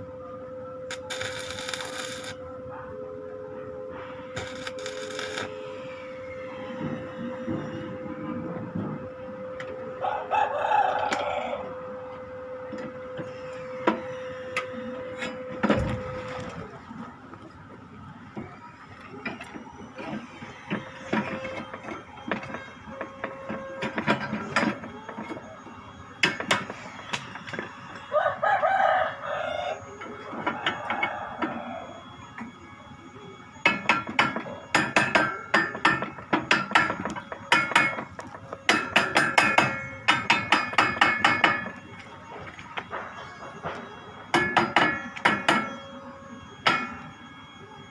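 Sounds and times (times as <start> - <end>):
rooster crowing: 9.9 - 12.0, 28.1 - 32.1
hammer strikes: 33.6 - 41.8, 42.8 - 45.8, 46.6 - 47.0.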